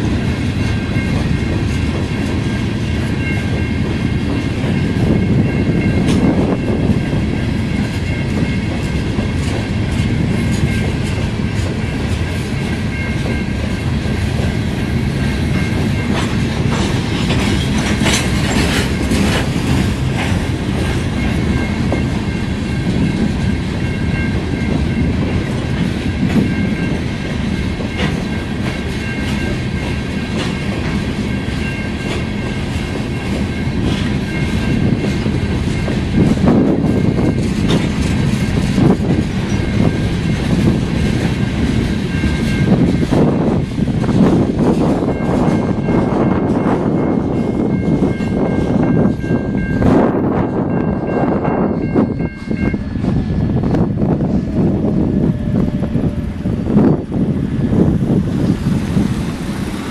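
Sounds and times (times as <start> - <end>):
freight train rumbling past: 0.0 - 59.9
wheels clicking over rails: 15.9 - 22.2.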